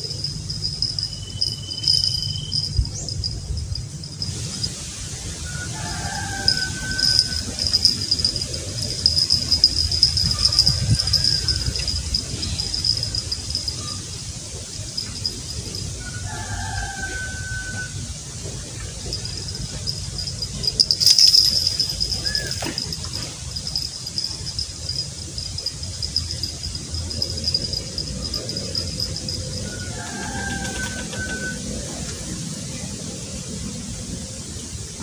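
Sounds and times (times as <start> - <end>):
insect trilling: 0.0 - 31.6
low outdoor rumble: 0.0 - 35.0
whistled calls: 0.5 - 3.4, 5.4 - 14.1, 20.2 - 31.8.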